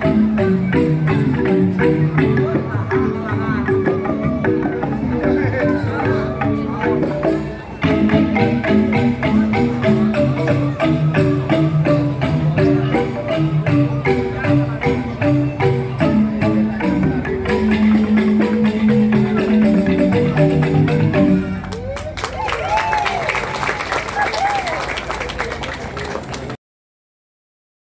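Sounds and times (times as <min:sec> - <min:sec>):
other percussion: 0:00.0 - 0:21.8
bamboo xylophones playing fast runs: 0:00.0 - 0:23.3.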